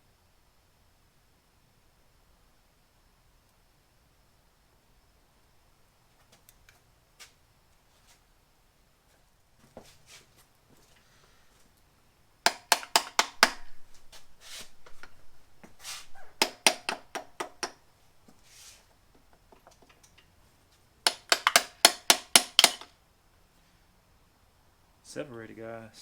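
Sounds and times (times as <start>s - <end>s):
hammer tapping on metal: 12.5s - 13.8s, 16.4s - 17.8s, 21.1s - 22.9s
faint scraping: 13.7s - 16.4s.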